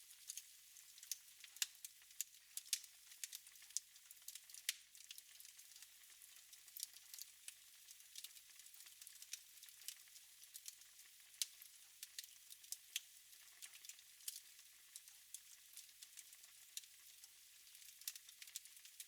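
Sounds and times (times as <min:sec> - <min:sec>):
faint steady hiss: 0:00.0 - 0:19.0
wood fire crackling: 0:00.2 - 0:05.9, 0:17.7 - 0:18.6.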